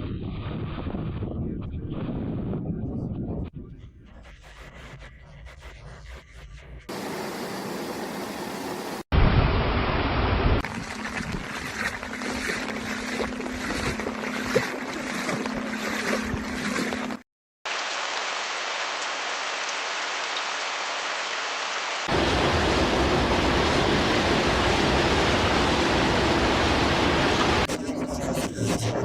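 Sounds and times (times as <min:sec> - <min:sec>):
rushing rain or running water: 0:06.9 - 0:12.6, 0:17.7 - 0:27.7.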